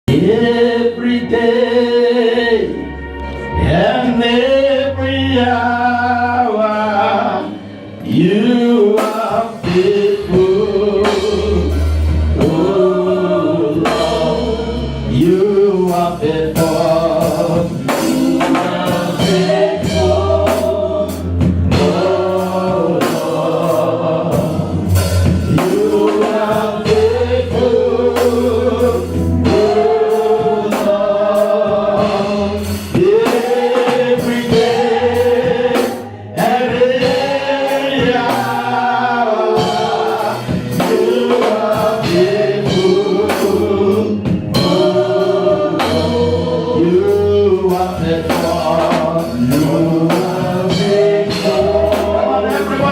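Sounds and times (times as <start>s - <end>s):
band with bass and drums: 0.1s - 52.9s
voices singing together: 0.1s - 52.9s.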